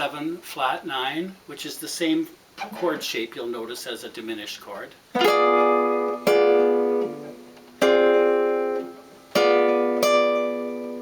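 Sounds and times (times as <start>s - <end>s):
guitar chords strummed: 5.2s - 11.0s.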